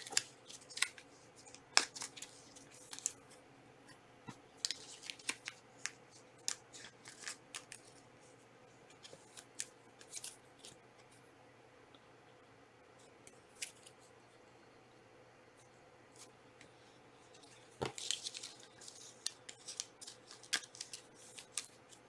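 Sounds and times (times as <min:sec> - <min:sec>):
card pack wrappers crinkling: 0:00.0 - 0:03.2, 0:04.6 - 0:08.0, 0:17.8 - 0:22.0.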